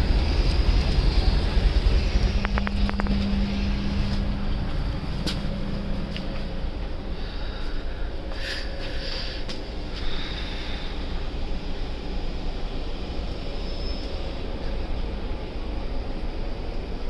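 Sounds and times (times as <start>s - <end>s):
passenger train coach rumble: 0.0s - 17.0s
steady hum: 0.0s - 17.0s.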